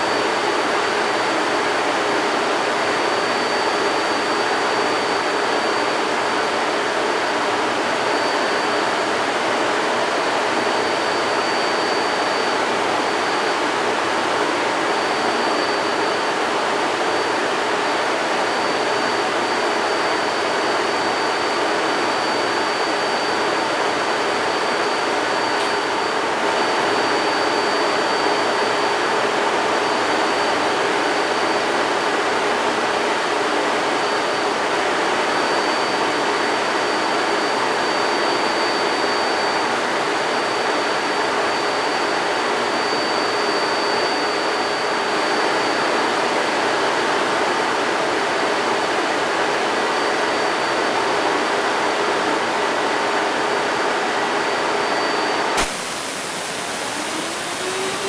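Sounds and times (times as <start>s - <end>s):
faint high whine: 54.9s - 58.0s
diesel engine roaring: 55.6s - 58.0s.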